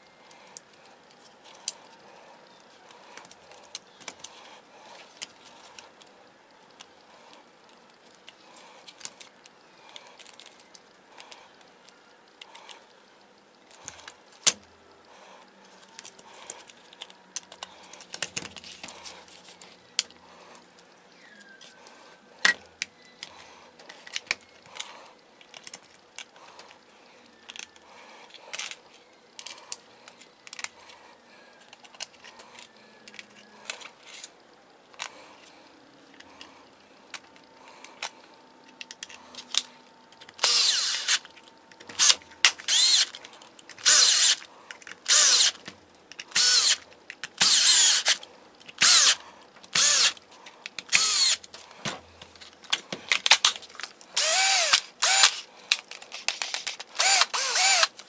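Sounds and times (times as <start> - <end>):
clicks and knocks of handled parts: 2.6 - 4.4, 6.7 - 12.7, 15.7 - 20.2, 22.4 - 31.0, 31.6 - 35.5, 36.1 - 58.0
cordless drill running in bursts: 40.4 - 41.2, 42.0 - 43.1, 43.8 - 44.4, 45.1 - 45.6, 46.3 - 46.8, 47.4 - 48.2, 48.8 - 49.2, 49.8 - 50.2, 50.9 - 51.4, 54.2 - 55.4, 56.9 - 58.0.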